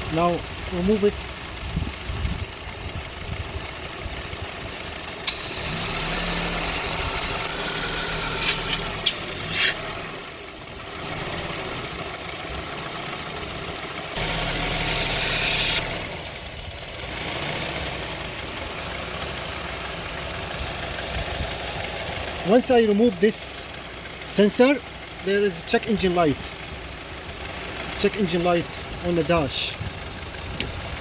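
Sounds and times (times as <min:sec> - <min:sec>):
car engine idling roughly: 0:00.0 - 0:31.0
sharp clicks: 0:05.2 - 0:10.1
loud hissing: 0:05.3 - 0:10.1.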